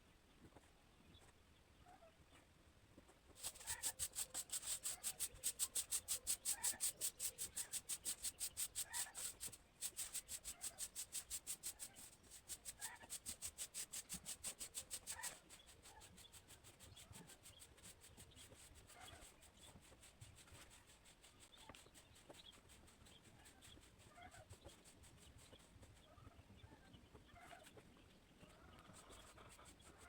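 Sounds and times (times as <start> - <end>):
fast scraping strokes: 3.4 - 23.8.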